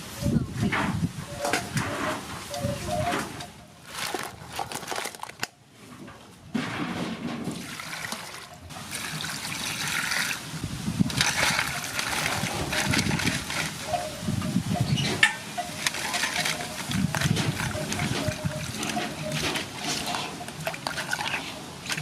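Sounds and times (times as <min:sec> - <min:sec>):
water splashing and trickling: 0:07.4 - 0:22.0.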